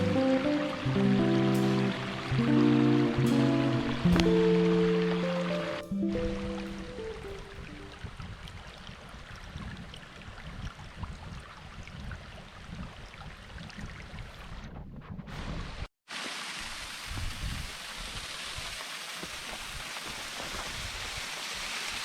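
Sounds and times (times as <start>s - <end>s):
wind buffeting microphone: 6.1s - 15.9s, 17.1s - 18.2s.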